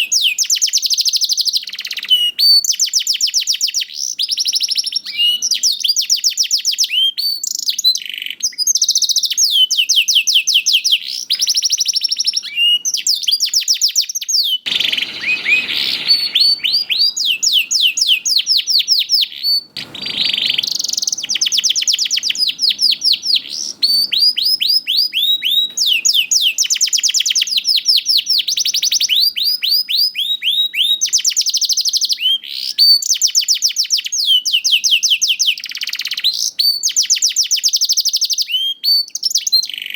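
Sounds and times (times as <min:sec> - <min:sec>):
canary singing trills: 0:00.0 - 0:39.9
short noisy rustles: 0:14.7 - 0:26.0.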